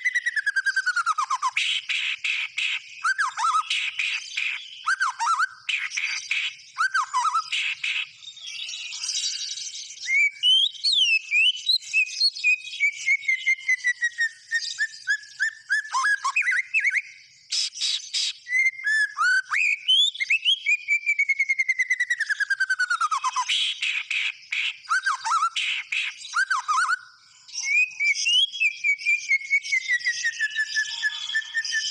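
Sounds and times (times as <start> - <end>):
harsh rasping bird calls: 0.0 - 8.2, 15.4 - 19.0, 23.0 - 28.2
songbird singing whistled notes: 0.0 - 31.9.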